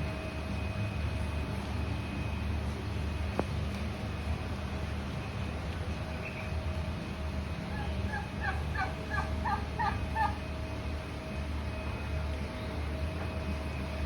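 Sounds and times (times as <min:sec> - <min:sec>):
steady low hum: 0:00.0 - 0:14.0
peafowl calling: 0:07.6 - 0:10.5.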